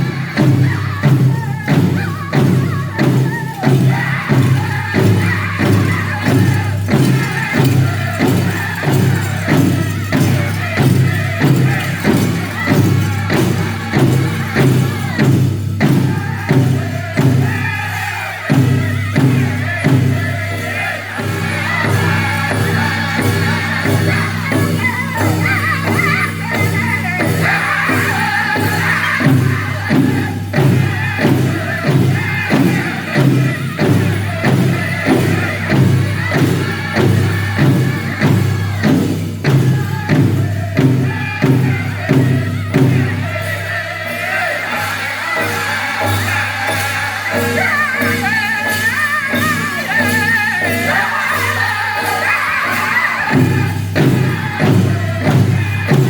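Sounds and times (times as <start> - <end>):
big drum beating: 0.0 - 49.6, 53.2 - 56.0
group singing high voices: 0.0 - 56.0.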